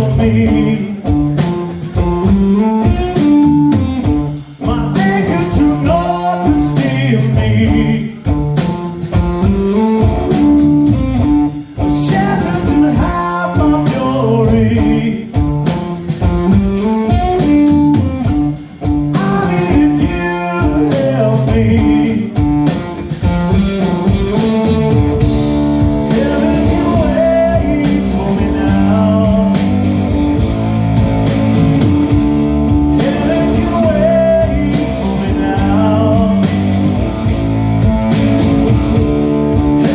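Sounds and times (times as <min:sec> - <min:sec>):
person singing: 0:00.0 - 0:01.6, 0:04.6 - 0:08.4, 0:11.8 - 0:15.4, 0:19.1 - 0:22.5, 0:26.1 - 0:29.9, 0:33.0 - 0:36.8
drum beat: 0:00.0 - 0:39.9
electric guitar: 0:00.0 - 0:39.9.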